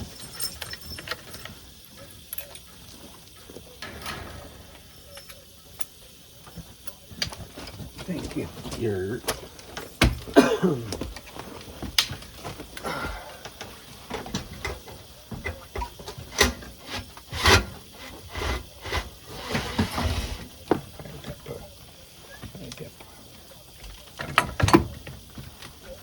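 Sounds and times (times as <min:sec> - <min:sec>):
short scrapes: 0:16.8 - 0:20.5.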